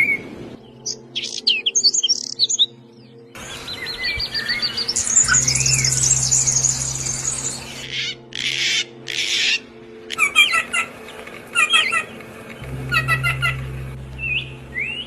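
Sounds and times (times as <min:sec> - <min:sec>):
songbirds trilling and chirping: 0:00.0 - 0:15.0
harsh bird squawks: 0:07.7 - 0:14.0
steady low hum: 0:12.2 - 0:15.0.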